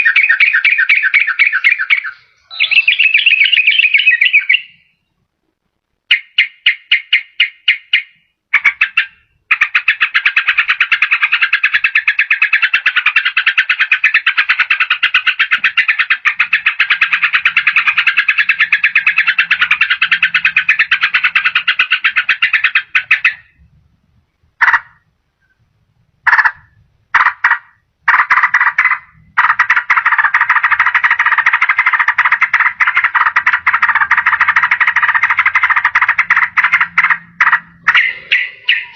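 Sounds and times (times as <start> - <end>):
bird rattling chatter: 28.2 - 38.9.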